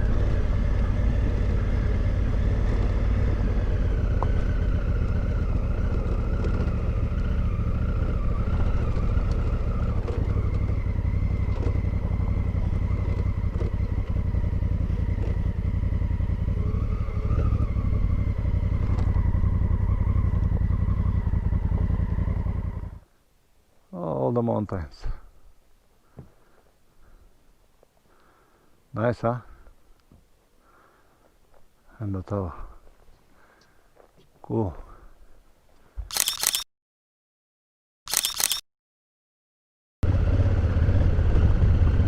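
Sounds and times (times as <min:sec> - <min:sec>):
motorcycle engine running: 0:00.0 - 0:23.0, 0:40.0 - 0:42.0.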